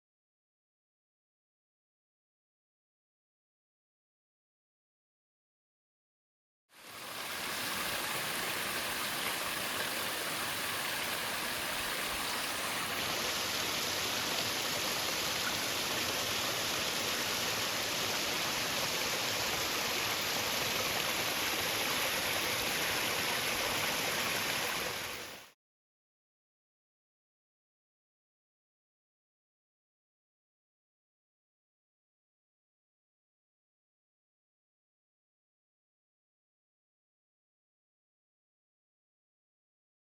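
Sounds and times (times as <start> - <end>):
waterfall rushing: 6.9 - 25.4.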